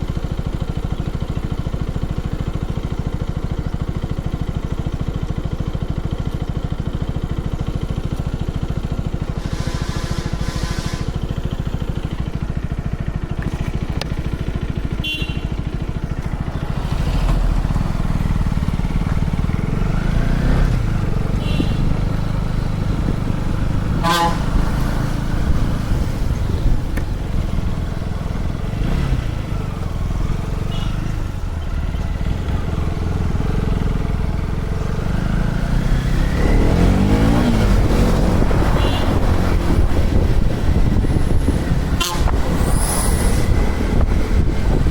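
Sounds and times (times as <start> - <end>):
motorcycle engine accelerating: 0.0 - 44.9
high horn toot: 9.4 - 11.4, 15.0 - 15.7, 21.3 - 22.2, 23.9 - 24.9, 30.6 - 31.1, 38.2 - 39.8, 41.8 - 43.6.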